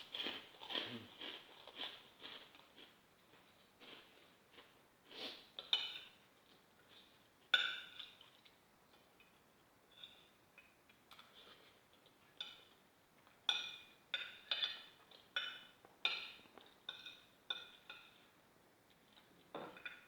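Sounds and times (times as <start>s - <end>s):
cutlery clinking on a plate: 5.6s - 6.2s, 7.5s - 8.5s, 12.3s - 18.3s, 19.2s - 20.0s.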